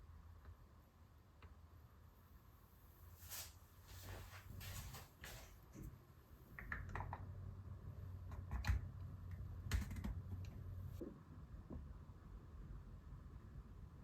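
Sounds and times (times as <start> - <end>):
typing on computer keyboard: 6.6 - 7.3, 8.3 - 8.9, 9.6 - 10.6.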